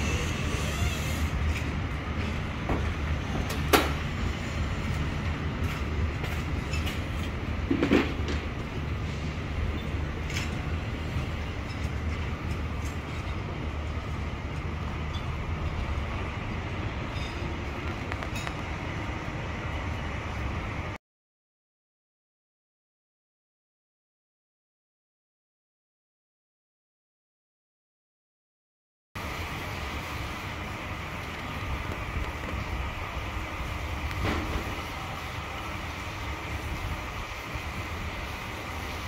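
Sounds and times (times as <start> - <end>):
train coaches rumbling past: 0.0 - 21.0, 29.2 - 39.0.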